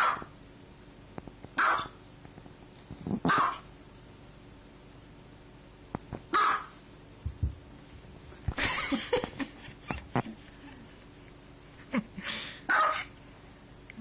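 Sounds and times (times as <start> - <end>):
dog barking: 0.0 - 0.3, 1.6 - 2.0, 3.3 - 3.7, 6.3 - 6.8, 12.7 - 13.1.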